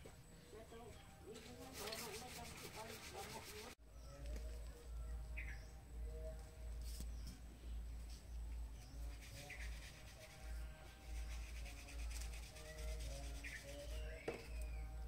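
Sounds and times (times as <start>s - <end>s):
bird chirps: 3.8s - 10.0s, 12.6s - 15.0s.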